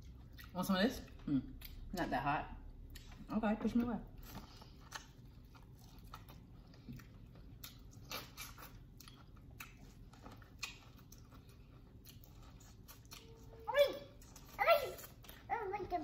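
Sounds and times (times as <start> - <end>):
biting and chewing corn: 4.3 - 15.6.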